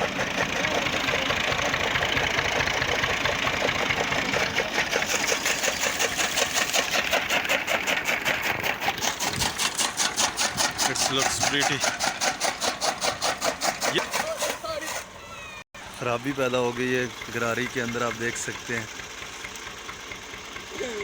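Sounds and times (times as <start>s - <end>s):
chaff cutter machine beat: 0.0s - 15.1s
tractor engine running: 0.0s - 21.0s.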